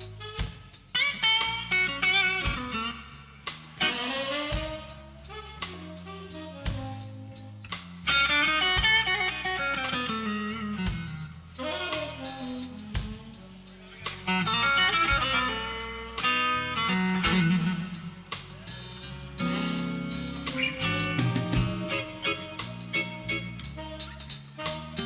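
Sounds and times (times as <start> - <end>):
blues band playing: 0.0 - 25.0
electric guitar solo: 19.4 - 23.6.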